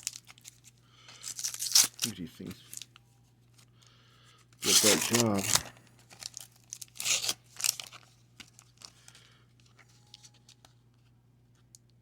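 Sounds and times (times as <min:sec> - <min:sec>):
wax paper wrapper crinkling: 0:00.0 - 0:03.7, 0:04.6 - 0:11.1
cards being handled: 0:04.6 - 0:08.9.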